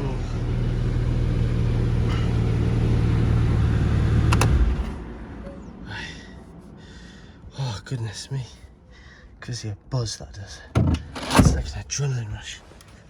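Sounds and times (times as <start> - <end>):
car engine revving: 0.0 - 5.8.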